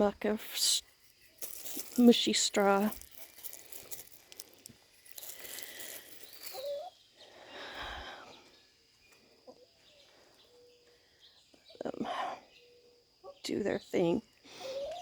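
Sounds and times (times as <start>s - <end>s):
light rustling: 0.8s - 6.9s.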